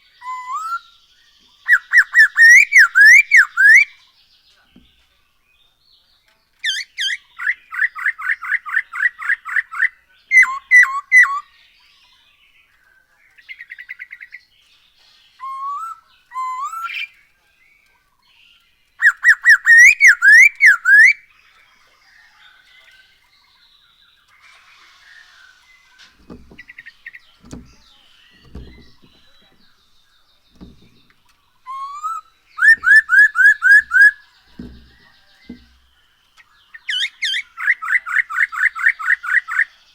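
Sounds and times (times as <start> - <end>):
bird singing whistled notes: 0.0 - 4.1, 6.6 - 17.8, 18.5 - 39.9
faint low knocks: 26.0 - 31.4, 32.6 - 36.0.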